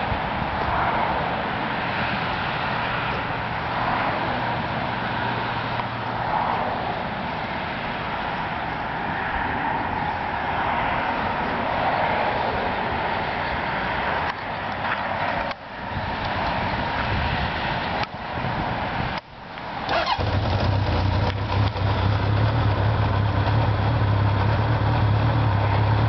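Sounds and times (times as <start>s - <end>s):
motorcycle engine idling: 19.9s - 26.0s.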